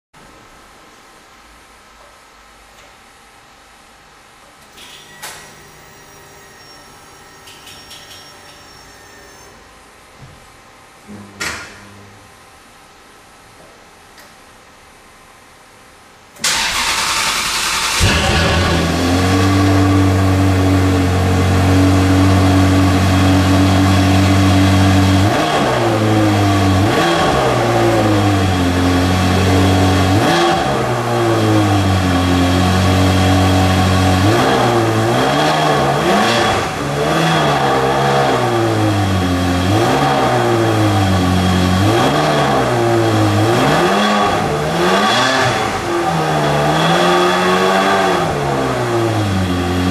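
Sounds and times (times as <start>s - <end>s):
car engine idling and revving: 16.4s - 49.9s.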